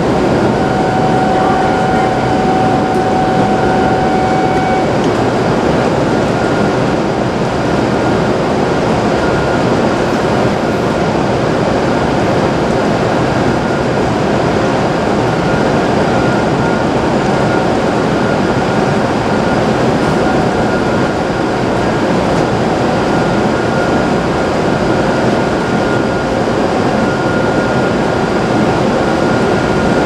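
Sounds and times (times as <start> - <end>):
steady tone: 0.0 - 8.1
train rumbling: 0.0 - 30.0.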